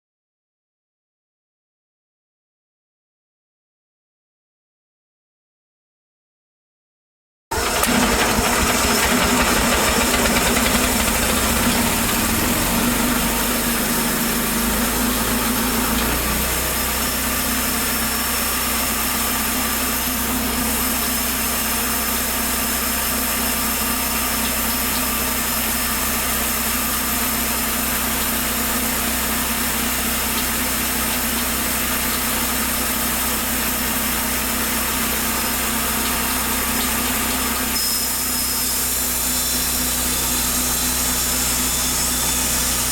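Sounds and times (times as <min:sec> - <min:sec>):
sawmill petrol engine idling: 0:07.5 - 0:42.9.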